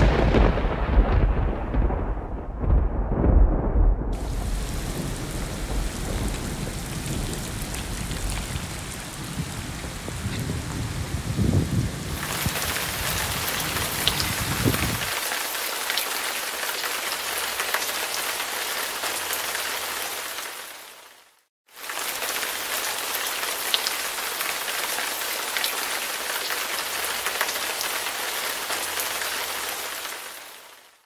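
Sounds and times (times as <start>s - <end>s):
heavy rain on paving: 0.0s - 3.4s, 4.1s - 31.0s
raindrop clicks: 5.7s - 9.0s.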